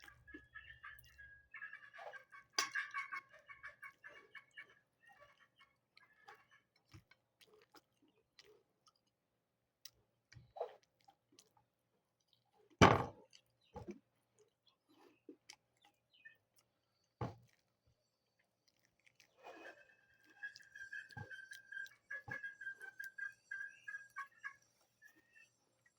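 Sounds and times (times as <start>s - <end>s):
knock: 12.8s - 13.2s.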